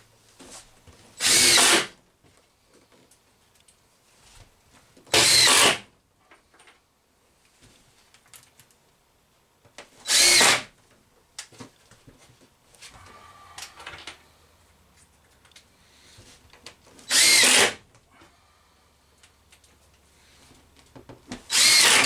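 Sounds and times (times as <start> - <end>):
power drill driving screws: 1.2 - 1.9, 5.1 - 5.9, 10.0 - 10.7, 17.1 - 17.8, 21.5 - 22.0.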